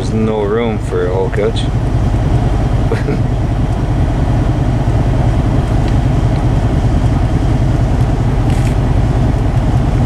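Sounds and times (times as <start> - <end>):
vehicle engine and road noise: 0.0 - 10.0.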